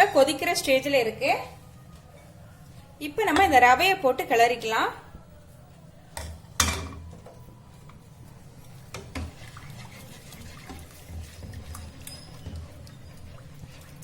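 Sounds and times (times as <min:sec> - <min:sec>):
spoon scraping and stirring: 0:08.6 - 0:14.0.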